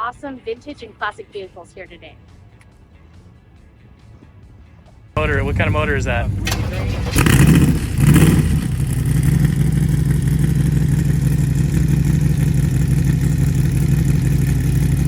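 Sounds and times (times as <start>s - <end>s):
car engine revving and idling: 5.2s - 15.0s.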